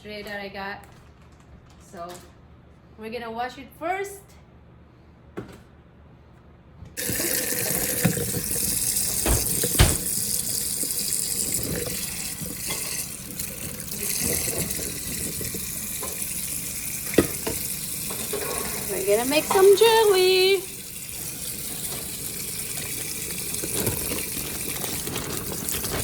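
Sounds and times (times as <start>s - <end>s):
kitchen tap turned on: 7.0s - 26.0s
water running into sink: 7.0s - 26.0s.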